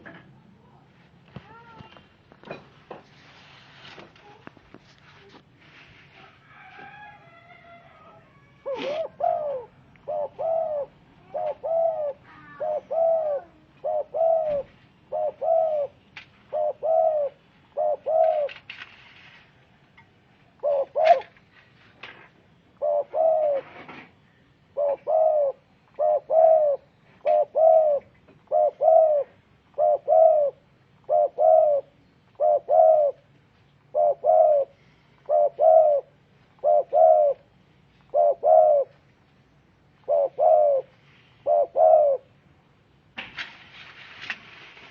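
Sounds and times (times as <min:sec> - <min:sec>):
dove cooing: 0:07.6 - 0:18.6, 0:20.5 - 0:21.4, 0:22.7 - 0:39.1, 0:40.0 - 0:42.4.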